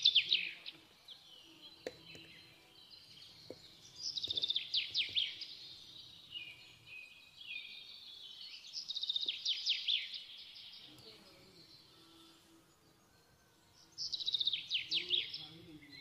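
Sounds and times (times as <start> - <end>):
small bird singing trills: 0.0 - 16.0.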